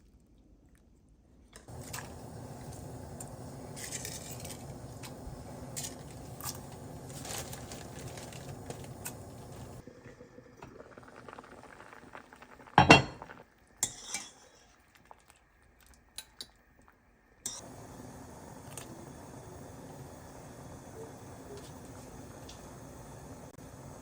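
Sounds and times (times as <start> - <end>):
dishes and utensils clinking: 12.8 - 14.4.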